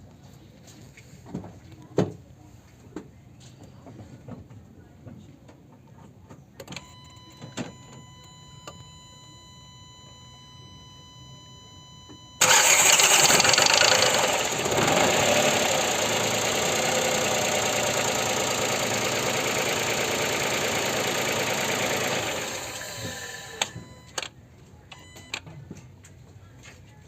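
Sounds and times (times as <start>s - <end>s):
car engine starting and idling: 12.4s - 24.2s
clicks: 22.8s - 24.3s.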